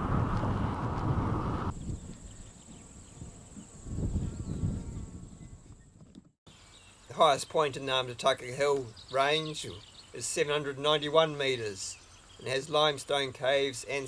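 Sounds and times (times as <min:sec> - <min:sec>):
wind and road rush: 0:00.0 - 0:05.4
gust of wind: 0:00.0 - 0:05.9.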